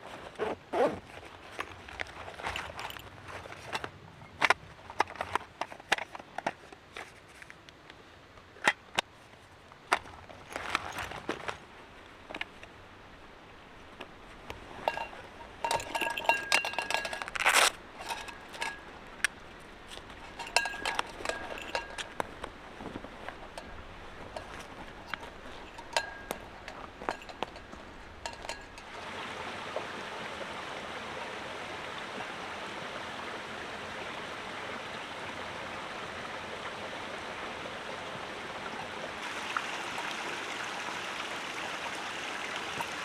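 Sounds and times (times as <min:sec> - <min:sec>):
metal gear clinking and clattering: 0:01.2 - 0:06.5, 0:09.9 - 0:28.9
metallic ringing: 0:11.8 - 0:29.0.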